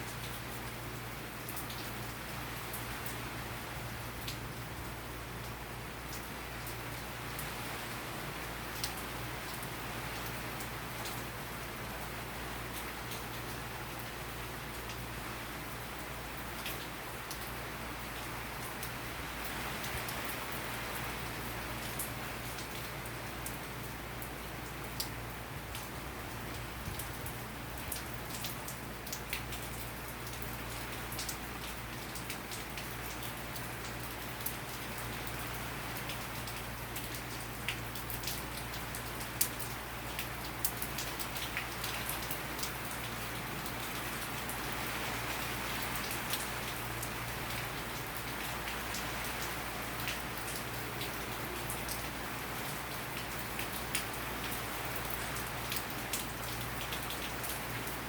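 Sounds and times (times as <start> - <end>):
rain falling: 0.0 - 58.0
raindrops ticking close by: 4.0 - 58.0.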